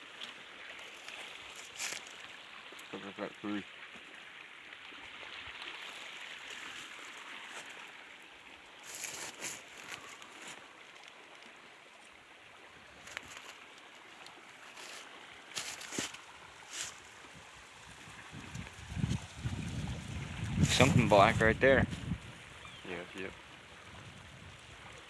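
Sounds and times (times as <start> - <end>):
river water rushing: 0.0 - 21.3.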